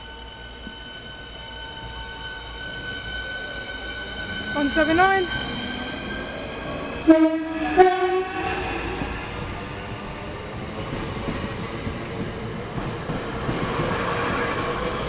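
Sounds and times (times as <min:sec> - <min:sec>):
train rushing and rumbling: 0:00.0 - 0:15.0
train two-tone horn: 0:04.5 - 0:05.6, 0:07.0 - 0:09.1.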